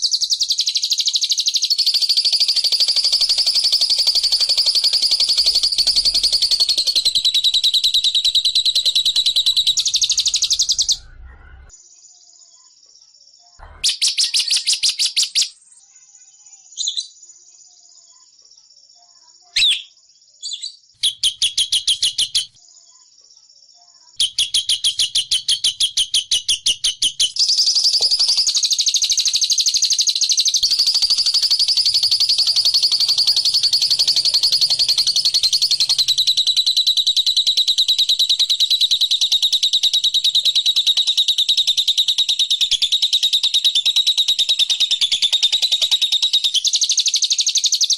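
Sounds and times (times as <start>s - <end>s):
songbird ticking trill: 0.0s - 11.0s, 19.6s - 22.6s, 24.2s - 47.9s.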